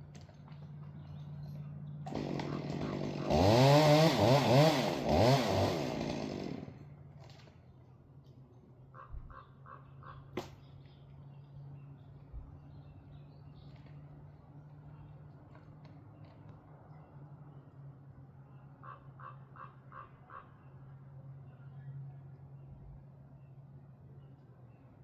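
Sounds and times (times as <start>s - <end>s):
chainsaw revving: 2.1s - 7.4s.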